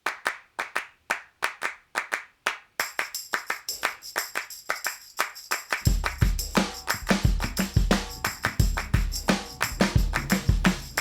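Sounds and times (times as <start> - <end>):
rhythmic handclaps: 0.0 - 11.0
shimmering high percussion: 3.1 - 11.0.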